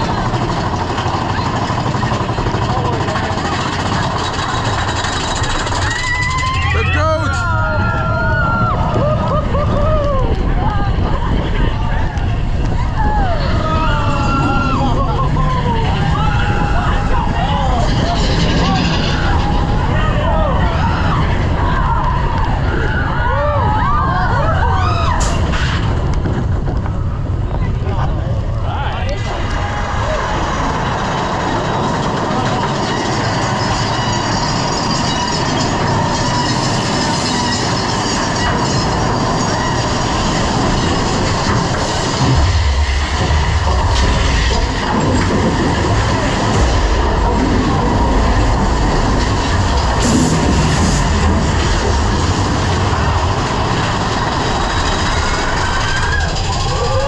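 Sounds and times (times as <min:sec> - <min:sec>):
sharp clatter: 0:00.0 - 0:06.9, 0:29.1 - 0:57.0
roller coaster rumble: 0:00.0 - 0:57.0
high wavering squeals: 0:32.6 - 0:41.4.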